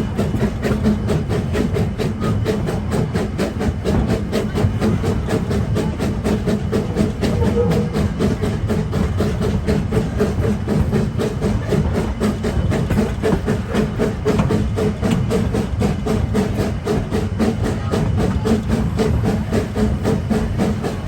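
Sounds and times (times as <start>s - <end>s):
train rumbling and clattering: 0.0s - 21.0s.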